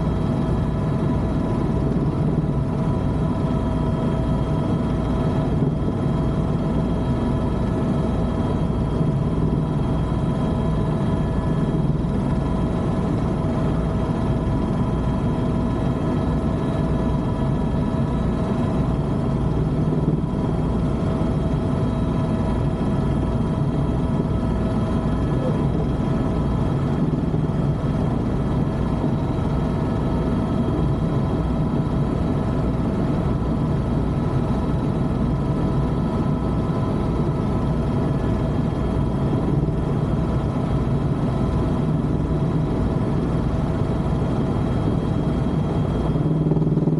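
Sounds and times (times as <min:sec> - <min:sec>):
helicopter rotor and engine: 0:00.0 - 0:46.9.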